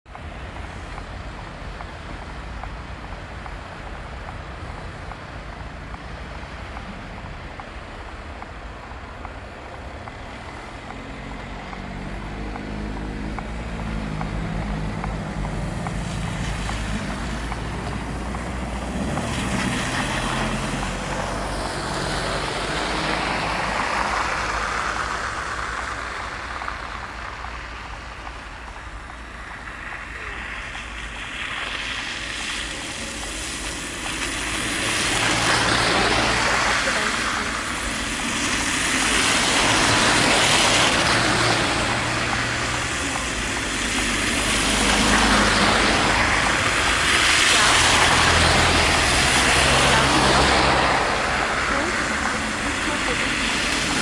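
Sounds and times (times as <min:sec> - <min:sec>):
low traffic rumble: 0:00.0 - 0:54.0
motor vehicle passing: 0:10.0 - 0:28.5, 0:29.3 - 0:54.0.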